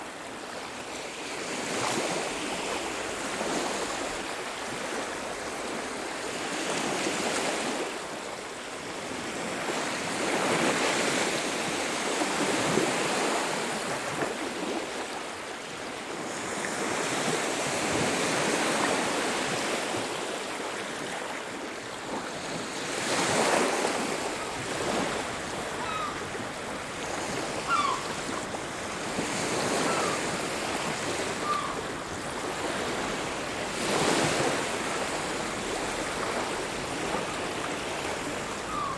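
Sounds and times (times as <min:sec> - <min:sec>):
waves washing on beach: 0:09.1 - 0:38.9
faint short bird calls: 0:25.6 - 0:26.4, 0:27.3 - 0:28.4, 0:29.5 - 0:32.0, 0:38.2 - 0:38.9.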